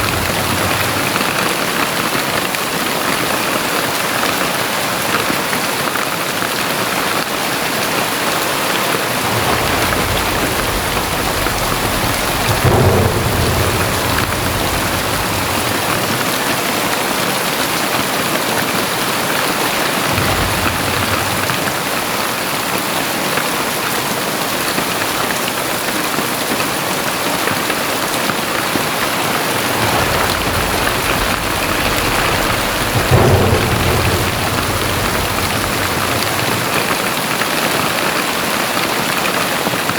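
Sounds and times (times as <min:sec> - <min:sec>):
deep low rumbles: 0:00.0 - 0:01.8, 0:09.2 - 0:17.0, 0:20.1 - 0:22.3, 0:29.0 - 0:37.4
heavy rain downpour: 0:00.0 - 0:39.9.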